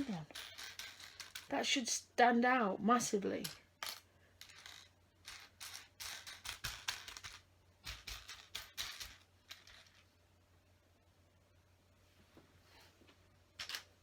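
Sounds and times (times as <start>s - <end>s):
plastic pieces rattling: 0.0s - 1.6s, 3.4s - 10.1s, 13.6s - 13.9s.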